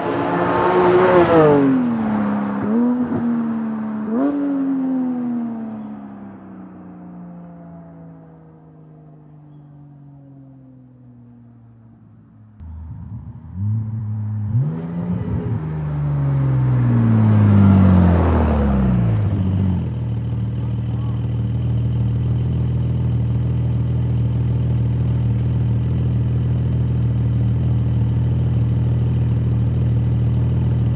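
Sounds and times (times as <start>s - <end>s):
sports car engine revving past: 0.0s - 5.7s, 12.6s - 20.3s
car engine idling: 11.8s - 30.9s.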